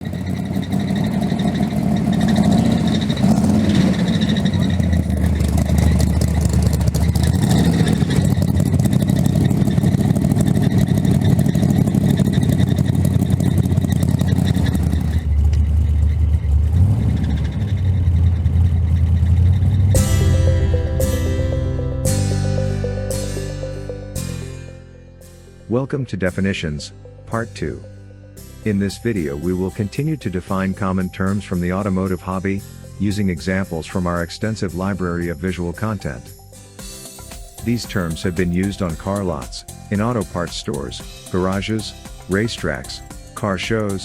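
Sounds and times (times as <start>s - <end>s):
car engine running: 0.0s - 24.6s
music: 19.9s - 44.0s.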